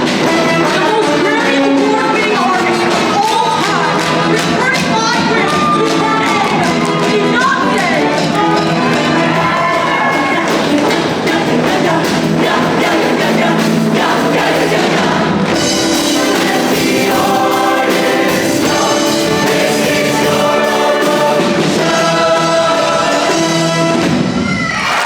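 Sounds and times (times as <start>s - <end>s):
loud pop accompaniment: 2.6s - 24.5s
choir singing in harmony: 8.8s - 24.3s.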